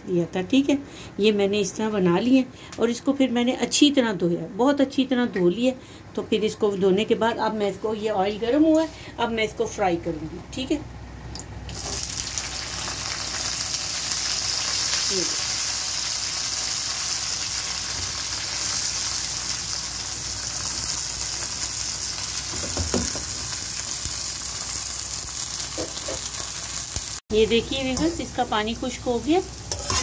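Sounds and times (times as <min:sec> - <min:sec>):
vegetables sizzling in hot oil: 0:11.7 - 0:30.0.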